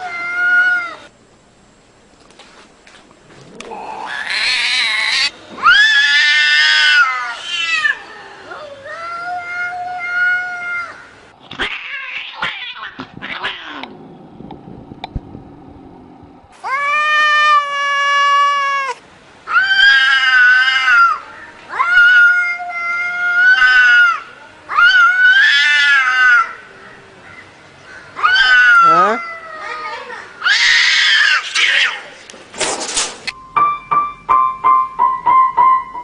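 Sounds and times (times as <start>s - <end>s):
cat yowling: 0.0s - 1.1s, 3.7s - 13.8s, 16.6s - 26.6s, 28.2s - 32.1s.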